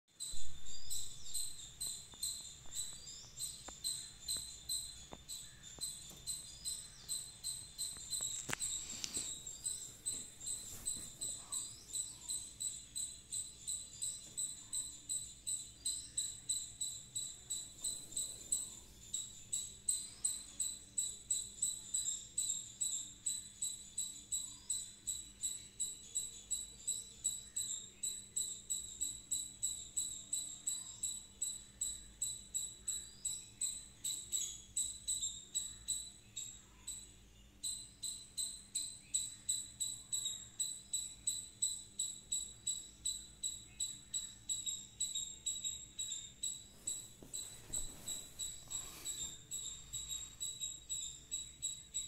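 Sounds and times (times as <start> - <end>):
small bird ringing call: 0.1 - 52.0.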